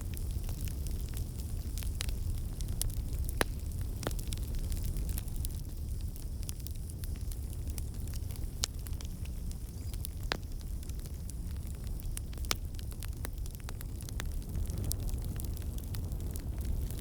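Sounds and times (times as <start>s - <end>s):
sharp pops of fire: 0.0s - 9.0s
fire crackling: 0.0s - 17.0s
low rumble of flames: 0.0s - 17.0s.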